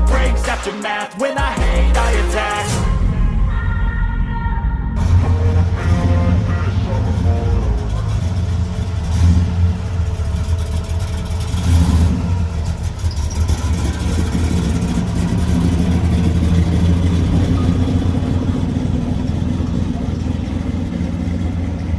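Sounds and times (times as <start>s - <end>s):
car engine idling and revving: 4.9s - 21.9s.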